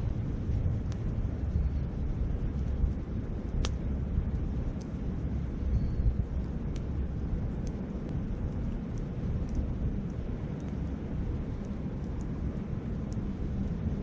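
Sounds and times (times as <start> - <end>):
sharp pops of fire: 0.0 - 5.1
campfire crackling: 0.0 - 14.0
wind on microphone: 0.0 - 14.0.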